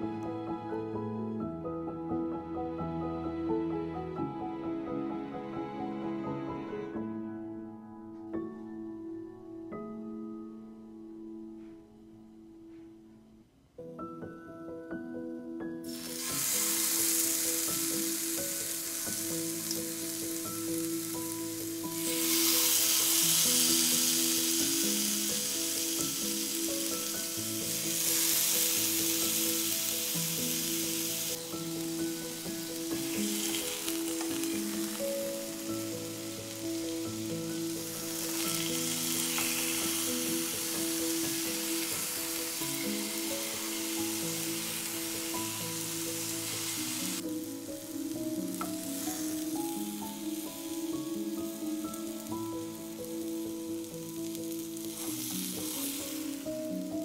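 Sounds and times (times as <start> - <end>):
background music: 0.0 - 57.0
meat sizzling in oil: 15.9 - 57.0.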